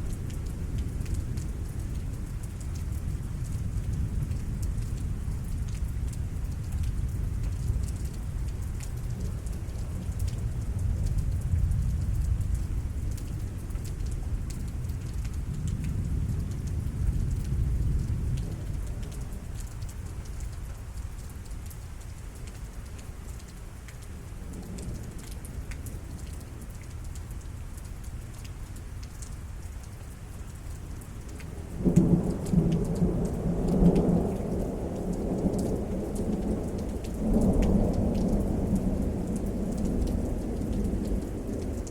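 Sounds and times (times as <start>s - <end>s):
steady rain: 0.0s - 41.9s
thunder rumbling: 31.7s - 41.9s.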